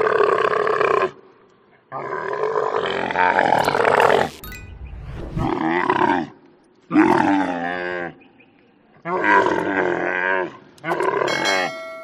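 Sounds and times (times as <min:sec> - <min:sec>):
low rumble: 0:03.6 - 0:05.8.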